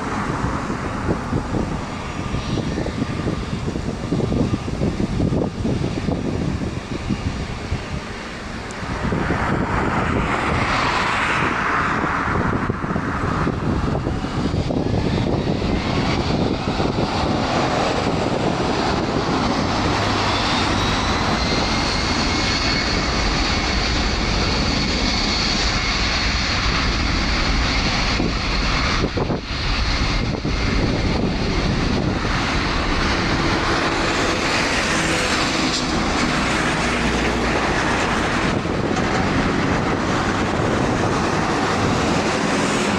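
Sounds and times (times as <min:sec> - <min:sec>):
jet engines with high whine: 0:00.0 - 0:42.9.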